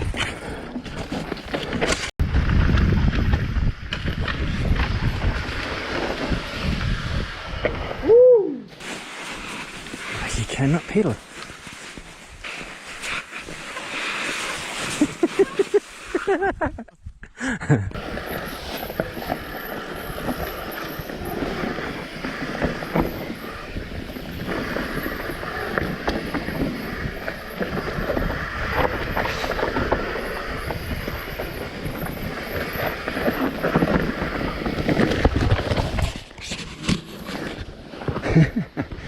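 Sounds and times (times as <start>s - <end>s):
bike knocking and rattling: 0.0s - 8.0s, 17.9s - 39.0s
tyre and wind rush: 0.0s - 39.0s.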